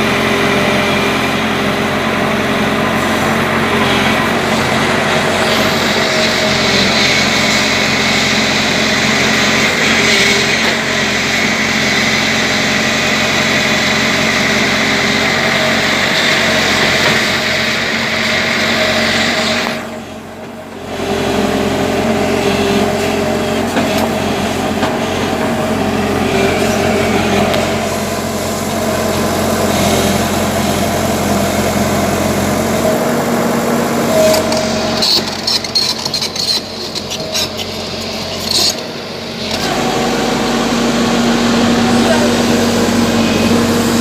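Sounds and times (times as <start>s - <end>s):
diesel engine under load: 0.0s - 44.0s.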